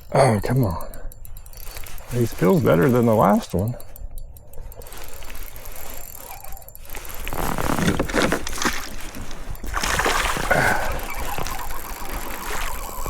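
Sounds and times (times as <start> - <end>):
water splashing and sloshing: 6.8 - 13.0.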